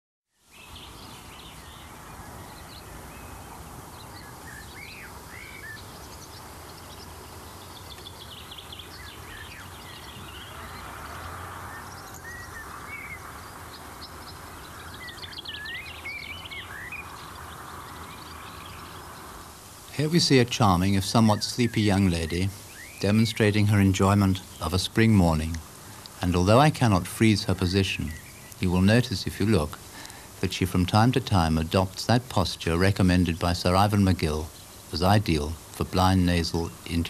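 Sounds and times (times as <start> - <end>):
birds chirping and singing: 0.4 - 37.0
steady hiss and low hum: 0.4 - 37.0.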